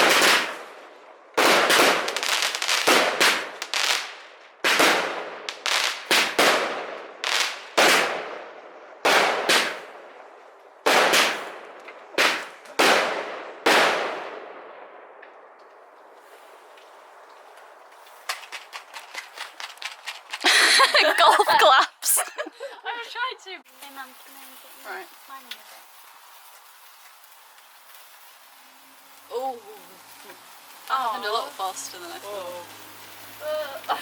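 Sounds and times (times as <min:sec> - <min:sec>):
fireworks bangs echoing: 0:00.0 - 0:16.4.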